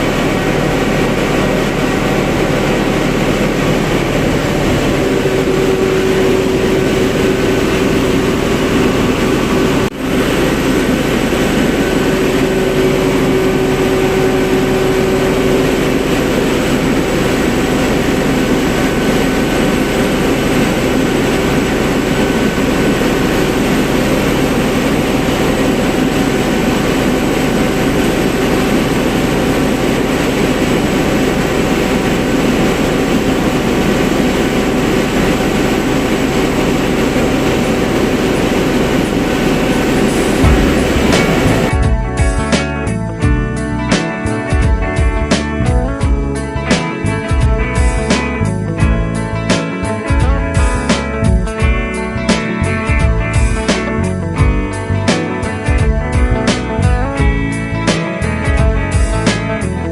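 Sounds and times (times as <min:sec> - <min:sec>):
steady tone: 0:00.0 - 0:42.5
generator engine running: 0:00.0 - 0:59.9.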